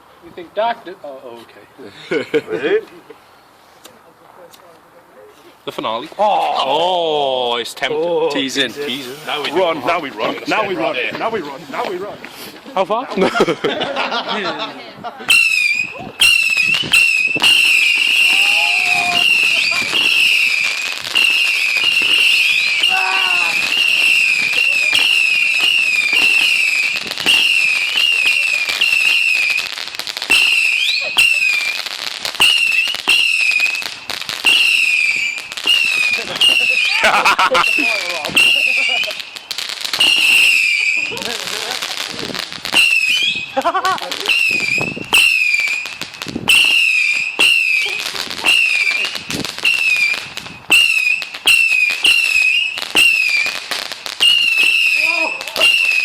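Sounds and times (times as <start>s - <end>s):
firework cracks and crackling: 8.4s - 13.4s, 15.3s - 56.0s
firework whistles: 15.3s - 56.0s.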